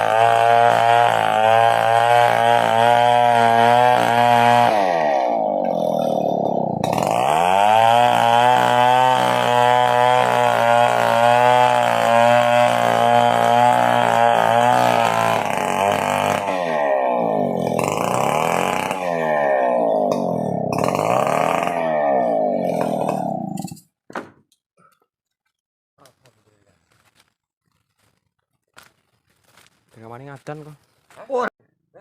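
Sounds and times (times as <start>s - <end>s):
chainsaw engine revving: 0.0s - 23.8s.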